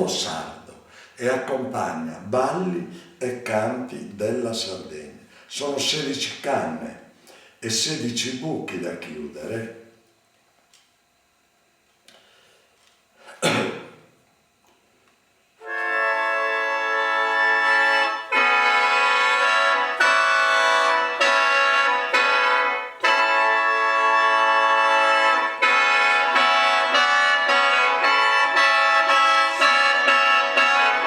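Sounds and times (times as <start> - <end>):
mouth organ playing chords: 0.0 - 7.0, 15.6 - 31.0.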